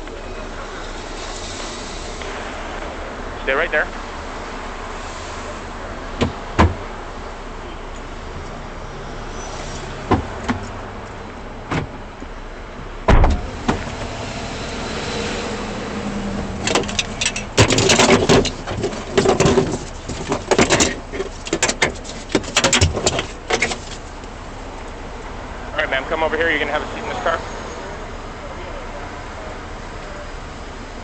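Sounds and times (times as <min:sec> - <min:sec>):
steady vehicle hum: 0:00.0 - 0:31.0
heavy thump: 0:13.0 - 0:14.0
clattering and rubbing: 0:16.4 - 0:24.3.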